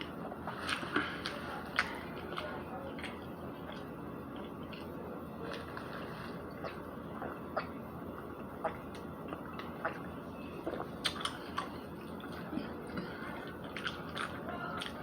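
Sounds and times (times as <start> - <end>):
chewing mouth clicks and smacks: 6.5 - 15.0.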